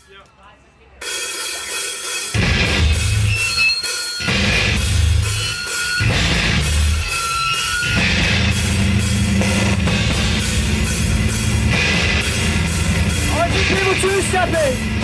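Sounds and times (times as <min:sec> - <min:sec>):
drum kit: 0:01.0 - 0:15.0
bass guitar: 0:02.4 - 0:03.6, 0:04.3 - 0:15.0
electric guitar: 0:04.3 - 0:15.0.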